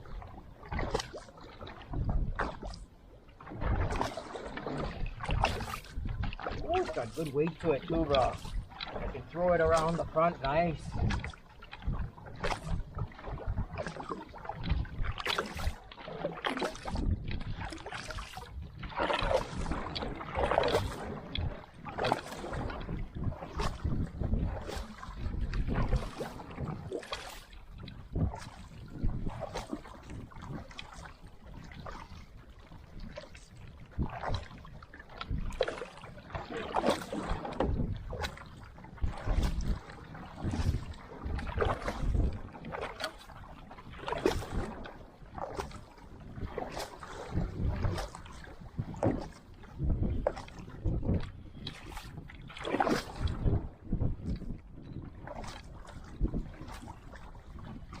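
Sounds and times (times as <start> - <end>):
paddle splashing in water: 0.0 - 58.0
water washing along hull: 0.0 - 58.0.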